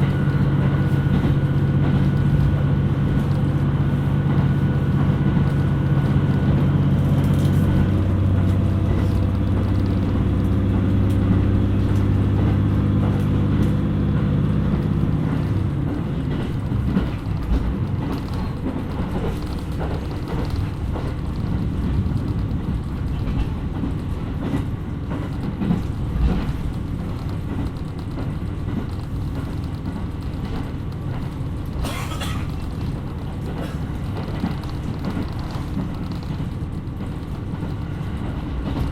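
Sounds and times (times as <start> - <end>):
diesel engine droning: 0.0 - 19.1
rail clicks: 0.0 - 38.9
wheel and track rumble: 0.0 - 38.9.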